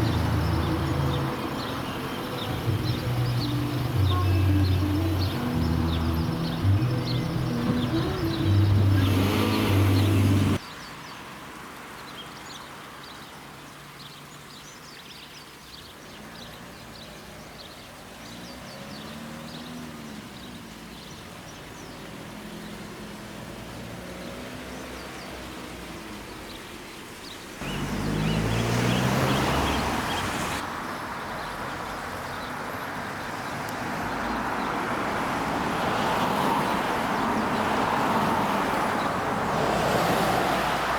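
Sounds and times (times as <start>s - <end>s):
motor vehicle passing: 0.0s - 10.6s, 27.6s - 30.6s, 33.8s - 40.9s
music with held low notes: 0.0s - 10.6s
small birds chirping: 0.0s - 40.9s.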